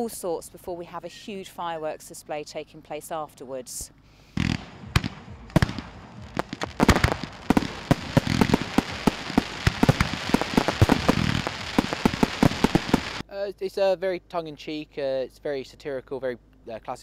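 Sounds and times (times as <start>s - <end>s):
fireworks and firecrackers banging: 4.4s - 13.2s.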